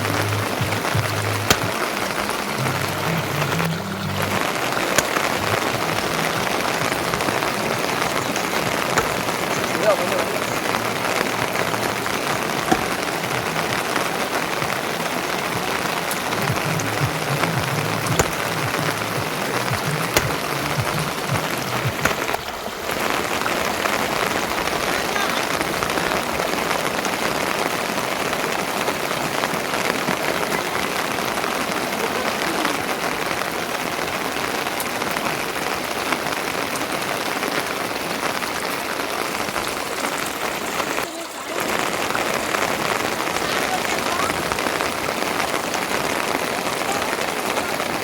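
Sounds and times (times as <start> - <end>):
steady rain patter: 0.0 - 48.0.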